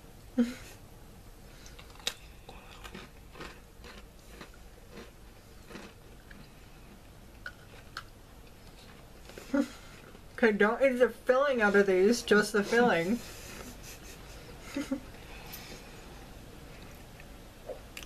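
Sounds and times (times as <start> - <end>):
cookies being bitten and chewed: 1.6 - 10.5.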